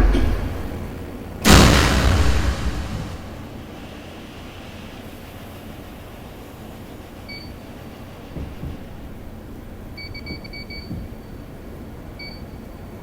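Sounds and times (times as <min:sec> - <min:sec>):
subway car rumble: 0:00.0 - 0:01.4
low thuds: 0:00.0 - 0:03.4.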